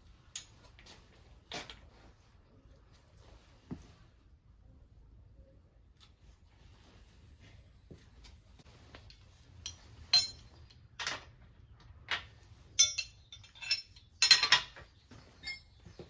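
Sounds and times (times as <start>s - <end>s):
hard objects clinking: 12.8s - 14.8s.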